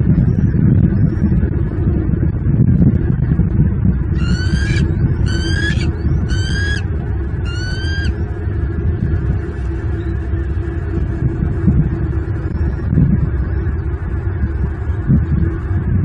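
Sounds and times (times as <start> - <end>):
low rumble: 0.0 - 16.0
bird call rising note: 4.2 - 6.8, 7.4 - 8.1.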